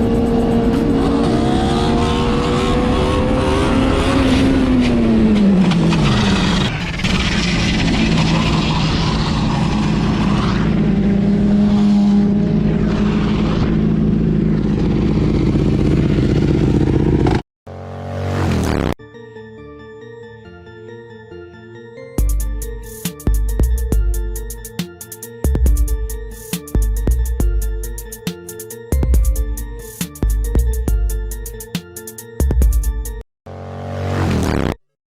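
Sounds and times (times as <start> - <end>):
vehicle engine running hard: 0.0 - 18.8.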